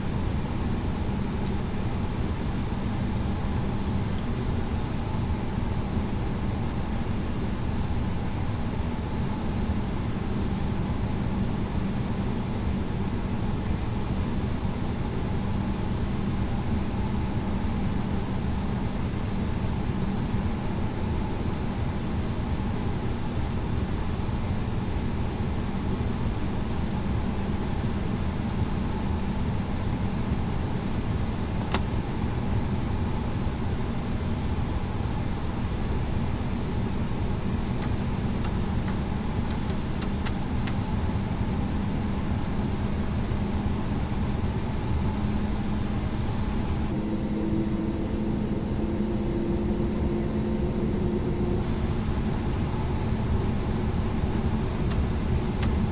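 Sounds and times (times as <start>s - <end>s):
jet engines rumbling: 45.6s - 55.9s
humming tone rising in pitch: 46.9s - 52.3s.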